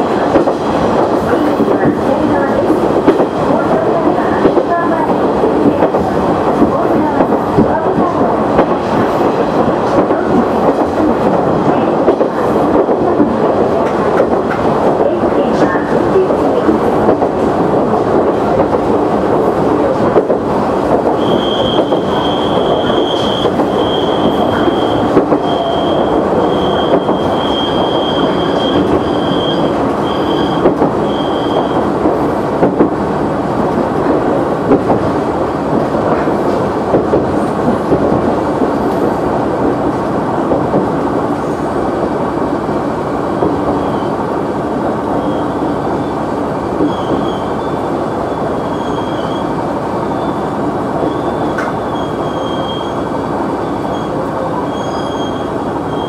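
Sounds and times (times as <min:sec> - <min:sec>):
diesel railcar engine: 0:00.0 - 0:56.0
high squeal: 0:21.2 - 0:31.8.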